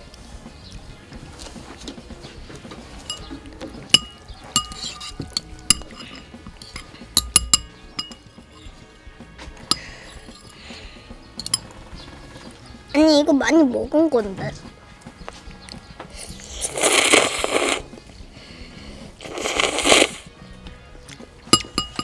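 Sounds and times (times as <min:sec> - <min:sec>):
utensils clinking against dishes: 0:01.4 - 0:12.6, 0:21.2 - 0:22.0.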